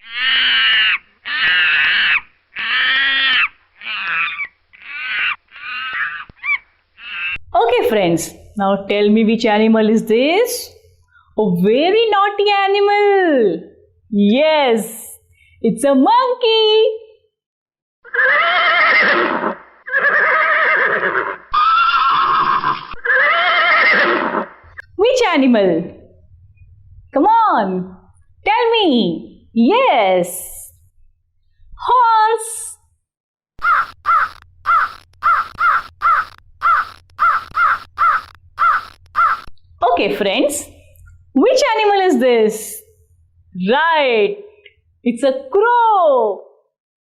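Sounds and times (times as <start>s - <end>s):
horse whinnying: 0.0s - 7.4s, 18.1s - 24.8s, 33.6s - 39.5s
animal calling: 0.0s - 7.5s, 18.1s - 24.9s, 33.6s - 39.6s.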